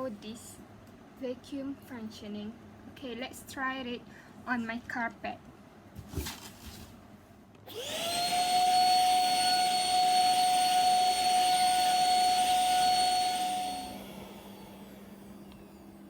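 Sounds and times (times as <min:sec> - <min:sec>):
vacuum cleaner motor whining: 0:07.7 - 0:16.0.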